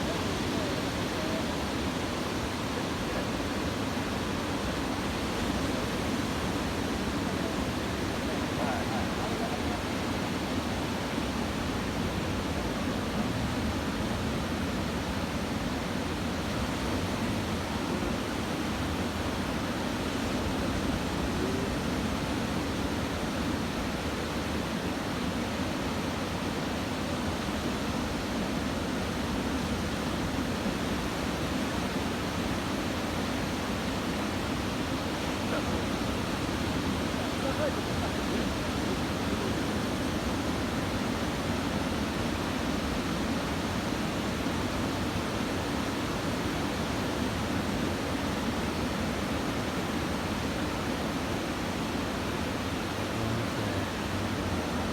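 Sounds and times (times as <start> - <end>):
surf breaking on a beach: 27.0 - 54.9.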